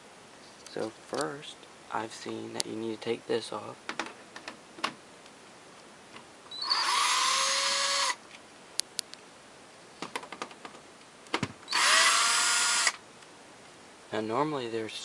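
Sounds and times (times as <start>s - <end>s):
power drill motor whine: 6.5s - 8.2s, 11.7s - 13.0s.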